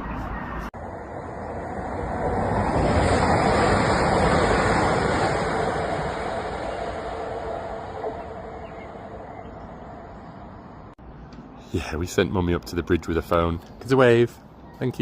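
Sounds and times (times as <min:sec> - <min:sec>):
vehicle passing by: 0:00.0 - 0:11.2.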